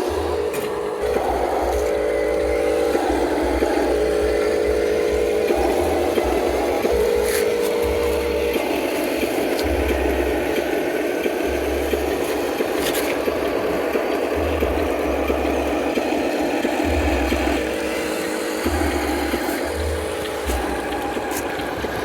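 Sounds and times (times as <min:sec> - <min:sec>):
deep hum: 0:00.0 - 0:10.6
small electric gear motors: 0:00.0 - 0:22.0.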